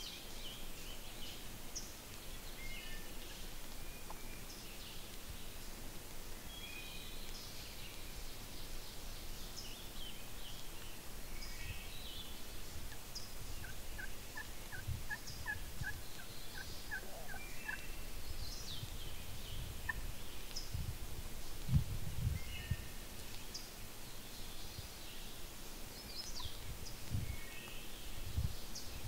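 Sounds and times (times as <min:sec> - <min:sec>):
songbird chirps: 0:00.0 - 0:29.0
turkey gobbling: 0:13.6 - 0:17.8.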